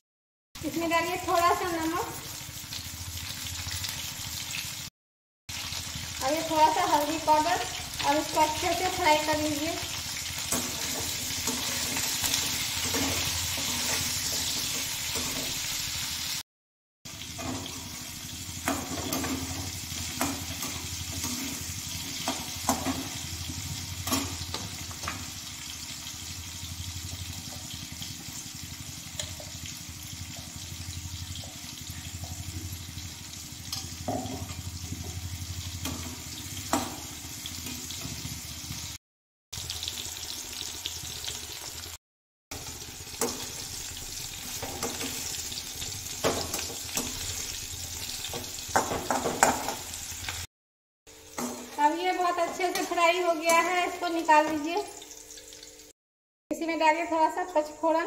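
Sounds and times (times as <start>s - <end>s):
vegetables sizzling in oil: 0.6s - 4.9s, 5.5s - 16.4s, 17.1s - 39.0s, 39.6s - 50.5s, 51.1s - 56.0s
metal spoon scraping a pan: 10.3s - 15.7s, 52.4s - 53.7s.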